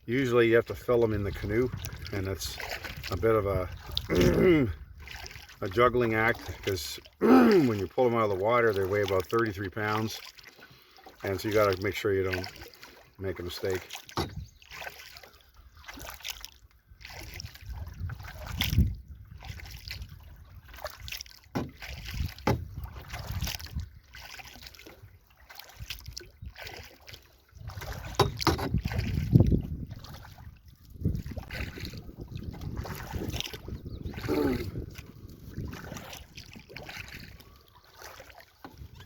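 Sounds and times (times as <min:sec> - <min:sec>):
paddle strokes in water: 0:00.0 - 0:39.0
wind buffeting microphone: 0:00.7 - 0:06.0, 0:14.2 - 0:14.6, 0:16.9 - 0:24.1, 0:27.5 - 0:37.6, 0:38.7 - 0:39.0.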